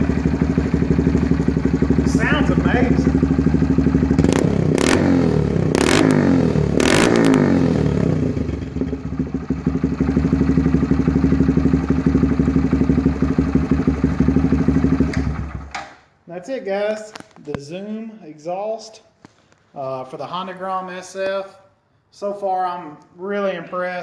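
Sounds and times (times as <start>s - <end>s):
exhaust cracks: 0.0s - 8.9s
motorcycle engine revving and idling: 0.0s - 15.8s.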